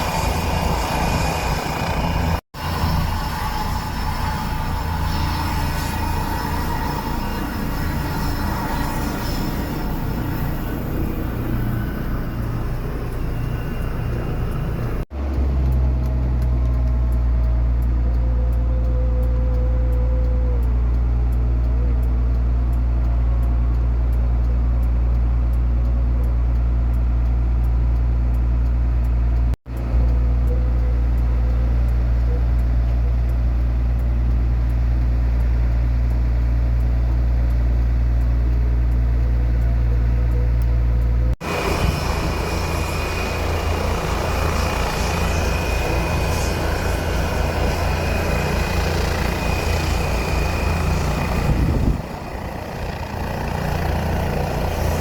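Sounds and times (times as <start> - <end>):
aircraft engine drone: 0.0 - 18.1, 29.1 - 55.0.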